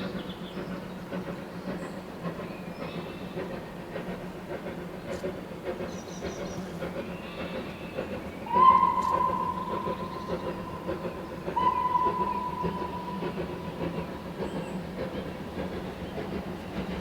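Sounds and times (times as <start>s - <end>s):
train rumbling: 0.0s - 17.0s
steam locomotive whistle: 8.4s - 14.9s.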